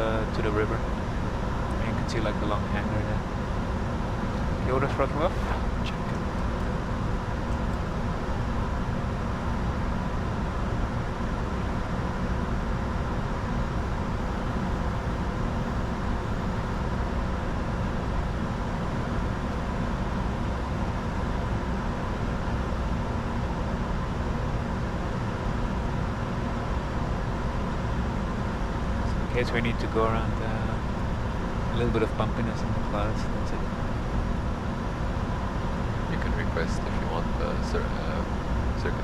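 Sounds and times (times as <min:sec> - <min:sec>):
jet engines humming: 0:00.0 - 0:39.0
faint steady tones: 0:13.0 - 0:17.8.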